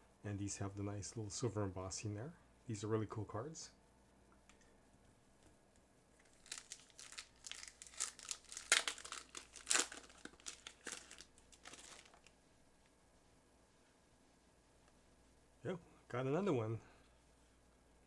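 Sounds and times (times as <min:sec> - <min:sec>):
card pack wrapper tearing and crinkling: 0:06.3 - 0:12.3.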